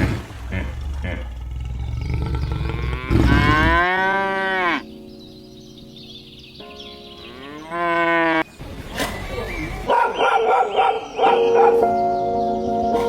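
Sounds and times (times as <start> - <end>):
cow mooing: 0.5 - 4.9, 7.3 - 8.4.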